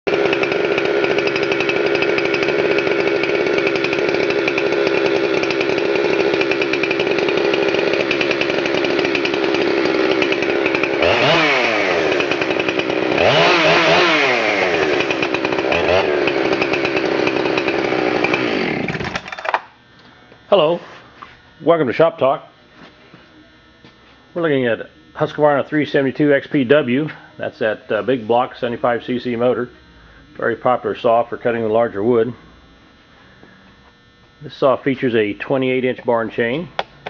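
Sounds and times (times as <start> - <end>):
chainsaw running and revving: 0.1 - 20.0.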